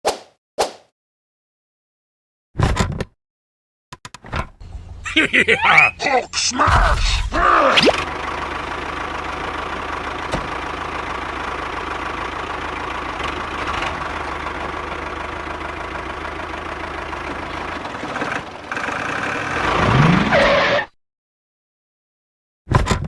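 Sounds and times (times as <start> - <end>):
vehicle engine idling: 4.6 - 5.2, 7.9 - 19.7.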